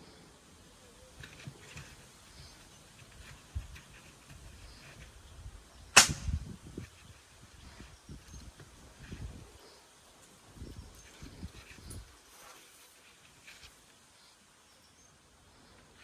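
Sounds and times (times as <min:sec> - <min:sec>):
faint rustling: 0:00.0 - 0:16.0
sharp loud crack: 0:06.0 - 0:06.4.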